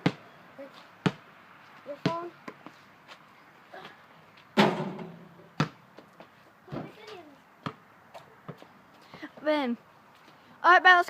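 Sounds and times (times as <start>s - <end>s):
loud ringing bang: 4.6s - 5.4s.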